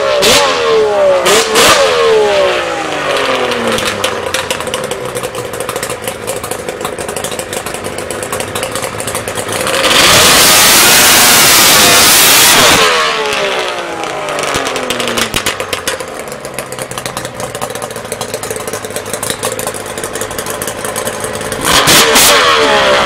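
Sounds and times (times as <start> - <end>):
atv engine revving: 0.0 - 23.0.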